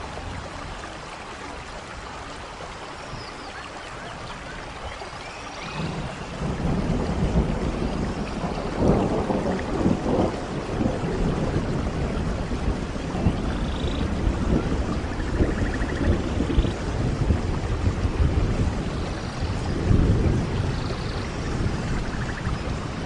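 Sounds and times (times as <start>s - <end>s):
steady rain: 0.0s - 23.0s
rolling thunder: 5.6s - 23.0s.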